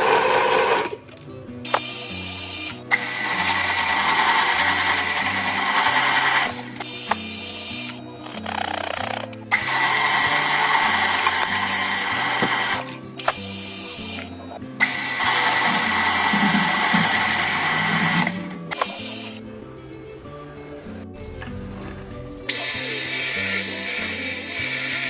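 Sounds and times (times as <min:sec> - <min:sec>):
lathe cutting metal: 0:00.0 - 0:01.0, 0:01.7 - 0:08.0, 0:09.5 - 0:19.4, 0:22.5 - 0:25.0
background music: 0:00.0 - 0:25.0.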